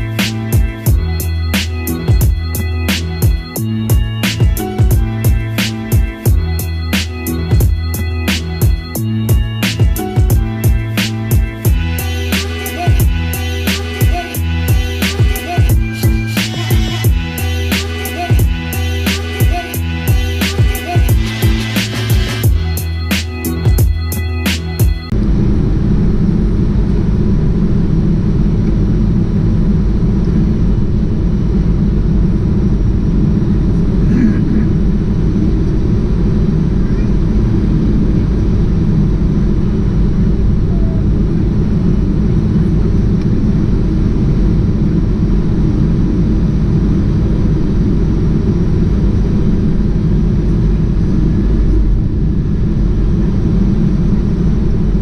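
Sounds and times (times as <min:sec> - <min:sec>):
jet airliner cabin drone: 0:00.0 - 0:55.0.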